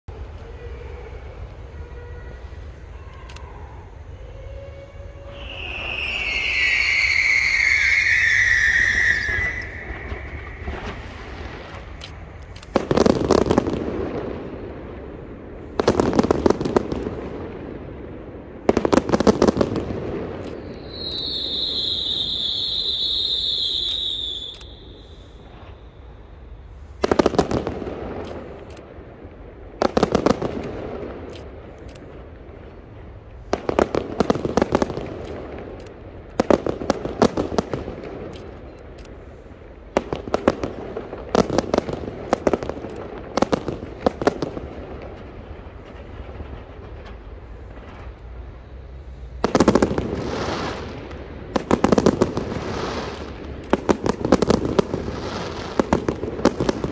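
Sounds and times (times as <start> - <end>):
steady high whistle: 1.7 - 11.7, 20.6 - 26.8
fireworks crackling bangs: 3.9 - 56.9.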